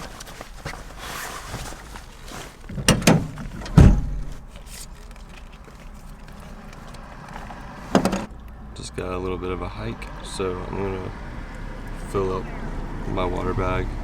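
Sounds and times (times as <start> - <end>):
heavy deep thump: 2.8 - 4.5.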